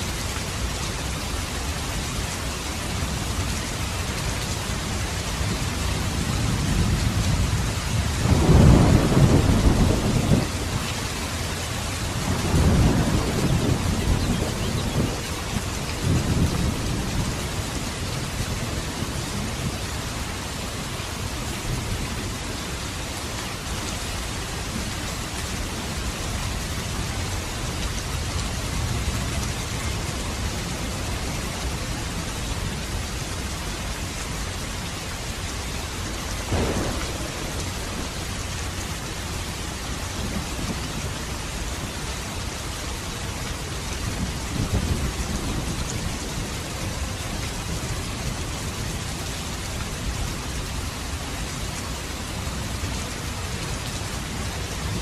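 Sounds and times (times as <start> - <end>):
steady rain falling: 0.0 - 55.0
low rumbling thunder: 6.0 - 11.0, 12.1 - 19.8, 36.5 - 41.3, 44.1 - 49.0.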